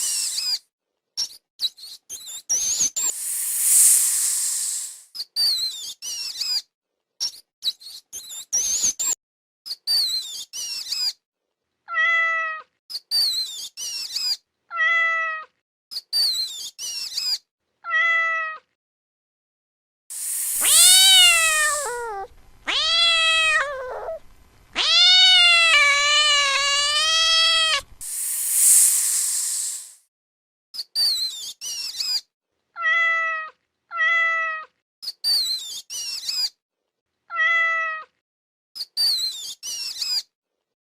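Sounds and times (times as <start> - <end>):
cat hissing: 0.0 - 0.6, 3.1 - 5.1, 20.1 - 24.2, 24.8 - 30.0
cat meowing: 11.9 - 12.7, 14.7 - 15.5, 17.8 - 18.7, 20.2 - 24.2, 24.8 - 27.9, 32.8 - 34.7, 37.3 - 38.1.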